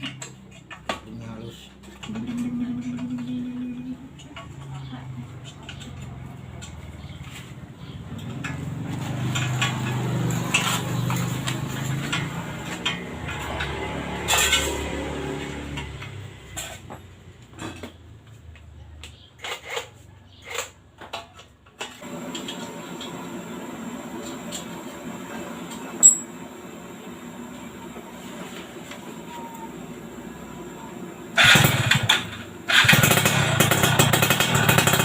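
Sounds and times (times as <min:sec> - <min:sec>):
two-stroke motorcycle engine running: 0:05.7 - 0:16.3, 0:31.3 - 0:35.0
sharp metallic clinks and knocks: 0:26.0 - 0:26.3.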